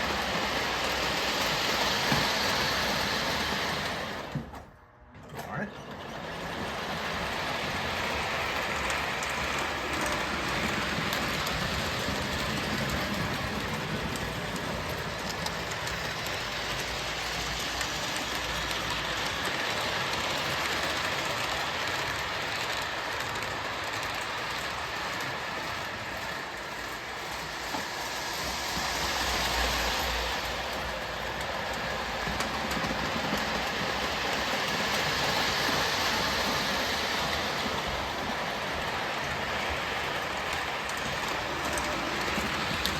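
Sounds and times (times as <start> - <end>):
model locomotive whirring rumble: 0.0 - 42.9.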